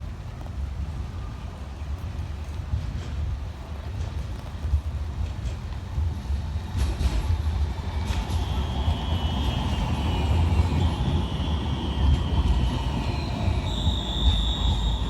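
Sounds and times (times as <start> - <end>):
tram passing with low rumble: 0.0 - 15.0
wheels squealing on rails: 6.1 - 15.0.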